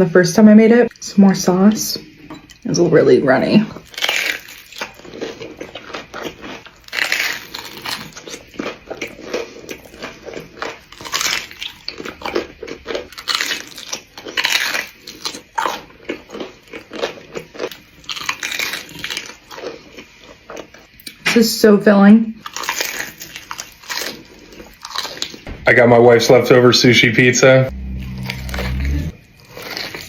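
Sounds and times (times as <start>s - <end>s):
person chewing food: 3.8s - 21.2s, 22.4s - 25.5s, 27.7s - 30.0s.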